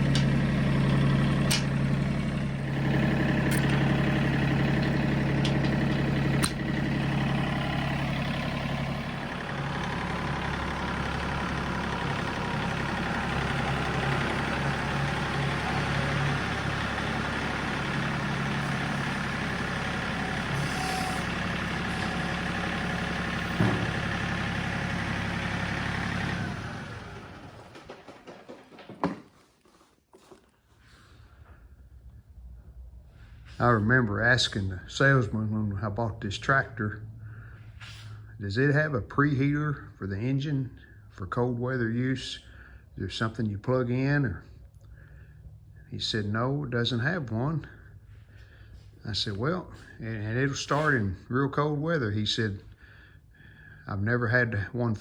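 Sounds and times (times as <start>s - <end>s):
tractor diesel engine running: 0.0s - 28.8s, 30.8s - 55.0s
engine shutting off: 0.0s - 28.9s, 30.8s - 41.6s, 42.3s - 43.0s, 44.1s - 51.3s, 52.1s - 55.0s
sharp clicks and knocks: 1.4s - 1.8s, 4.8s - 6.7s.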